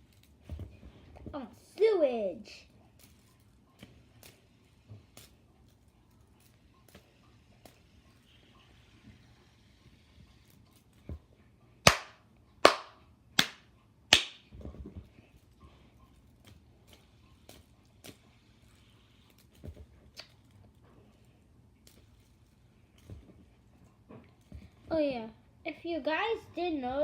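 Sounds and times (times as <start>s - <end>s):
loud sharp cracks: 11.9s - 14.4s.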